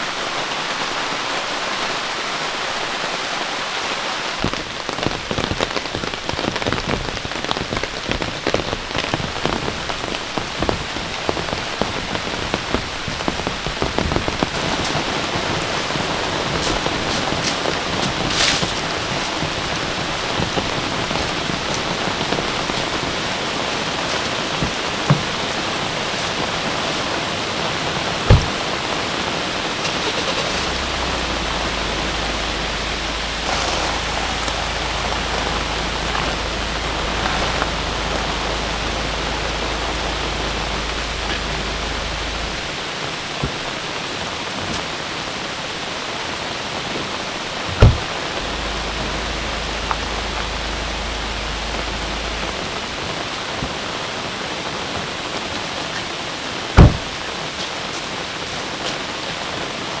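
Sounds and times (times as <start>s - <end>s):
heavy rain: 0.0s - 60.0s
loud sharp thuds: 28.3s - 28.8s, 30.6s - 42.7s, 47.7s - 52.7s, 56.8s - 57.2s
low steady rumble: 30.1s - 42.8s, 47.8s - 53.4s.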